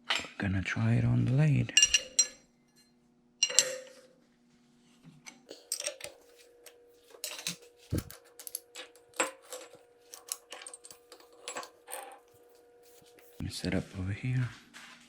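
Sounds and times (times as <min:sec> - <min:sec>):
metal clicks and clinks: 0:05.5 - 0:06.2, 0:07.2 - 0:12.4.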